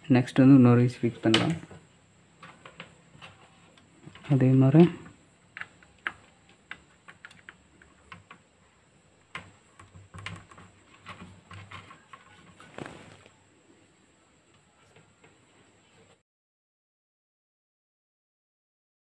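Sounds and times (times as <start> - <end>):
faint clicks and taps: 5.0 - 8.4, 9.2 - 13.3.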